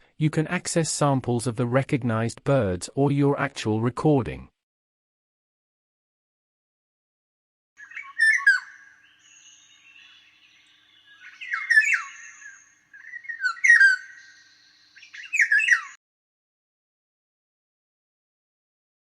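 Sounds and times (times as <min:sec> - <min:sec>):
songbird singing rapid notes: 0:07.8 - 0:16.0.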